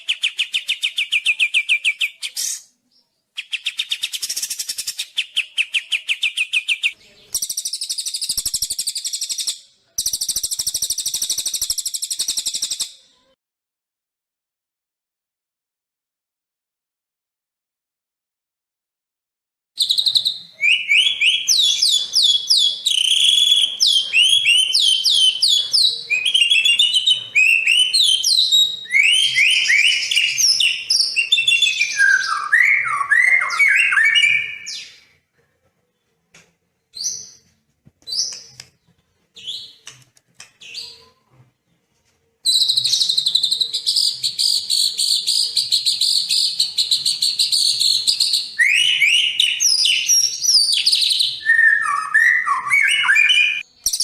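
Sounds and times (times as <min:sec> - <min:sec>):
songbird whistles and chirps: 0:00.0 - 0:13.3, 0:19.8 - 0:35.2, 0:42.4 - 0:54.0
fast buzzy bird trill: 0:07.4 - 0:12.8.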